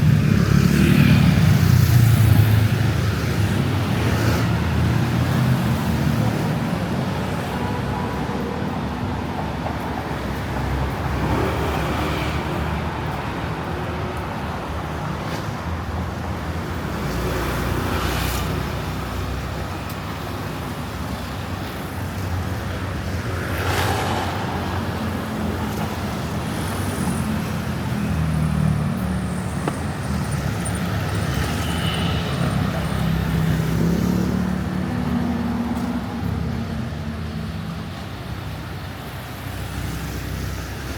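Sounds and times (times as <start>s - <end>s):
street traffic rumble: 0.0s - 40.9s
vehicles passing close by: 0.0s - 40.9s.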